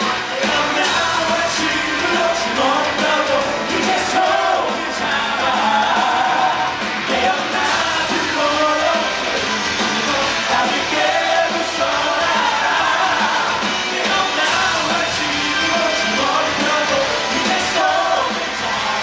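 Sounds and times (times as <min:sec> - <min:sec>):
band accompaniment: 0:00.0 - 0:19.0
cast singing rock song: 0:00.0 - 0:19.0
shouted singing: 0:00.0 - 0:19.0.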